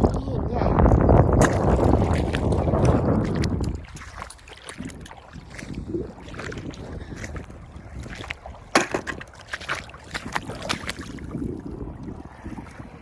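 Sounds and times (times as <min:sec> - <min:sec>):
wind buffeting microphone: 0:00.0 - 0:13.0
shells and stones knocking: 0:08.7 - 0:09.2.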